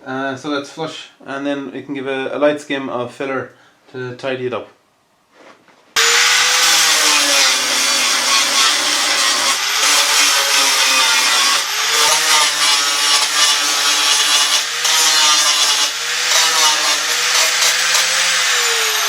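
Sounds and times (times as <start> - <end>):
angle grinder grinding metal: 6.0 - 19.0.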